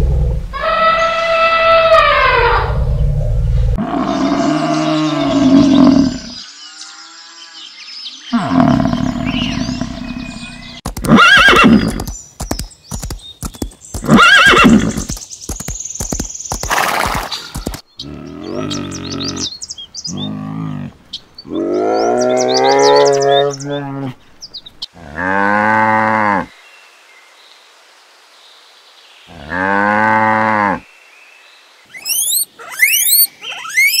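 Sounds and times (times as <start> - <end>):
horse whinnying: 11.0 - 12.0, 14.0 - 15.1
low drawn-out animal calls: 31.9 - 34.0.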